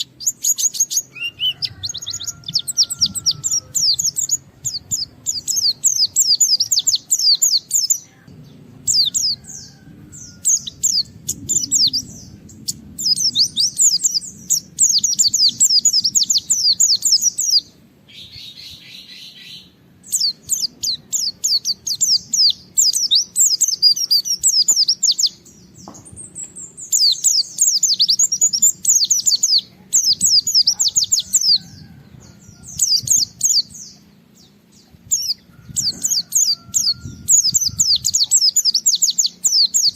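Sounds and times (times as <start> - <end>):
bird twittering rapidly: 35.1 - 39.9.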